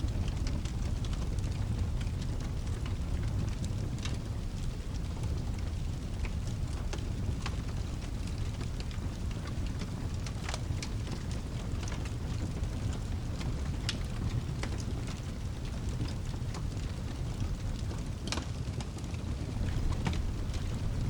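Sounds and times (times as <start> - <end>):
fireplace fire crackling: 0.0 - 21.0
rain hissing: 19.4 - 21.0.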